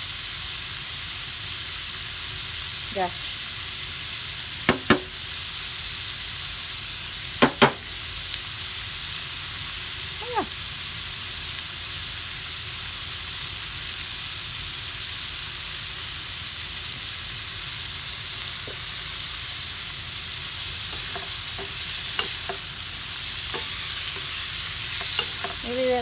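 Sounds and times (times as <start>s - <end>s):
food sizzling in a pan: 0.0s - 26.0s
utensil clicking against pan: 4.7s - 5.1s, 7.4s - 7.9s, 20.9s - 26.0s.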